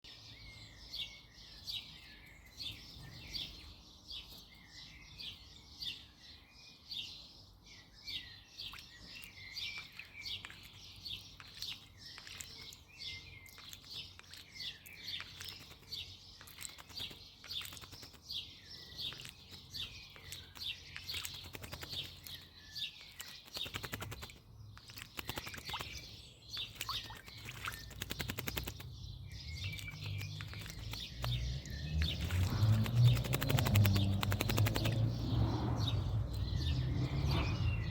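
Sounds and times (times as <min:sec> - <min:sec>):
birds chirping: 0:00.0 - 0:37.9
bird fluttering and splashing water: 0:09.8 - 0:36.6.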